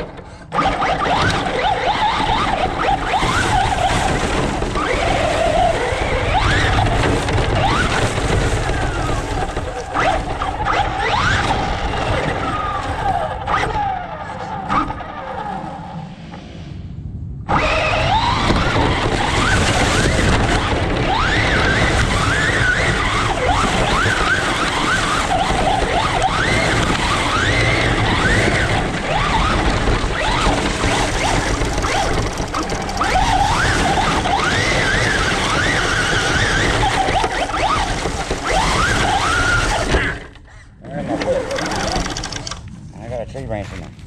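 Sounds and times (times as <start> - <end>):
loud rumbling noise: 0.0 - 40.5
electric motor whining: 17.5 - 42.6.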